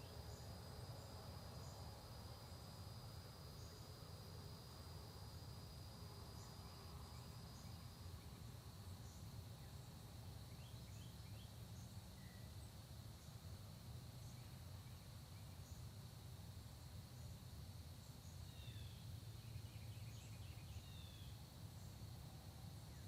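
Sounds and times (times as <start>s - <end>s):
insect trill: 0.0s - 23.0s
faint bird chirps: 18.0s - 22.0s.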